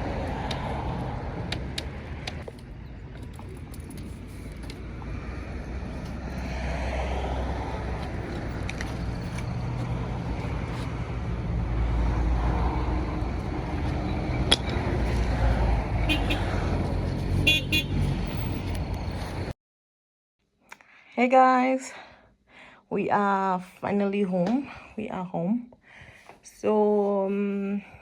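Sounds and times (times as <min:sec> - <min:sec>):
car engine and road rumble: 0:00.0 - 0:19.5.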